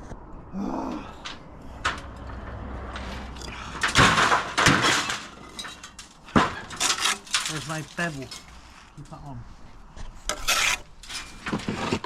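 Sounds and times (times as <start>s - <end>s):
rough scrape on hard surface: 10.3s - 12.0s.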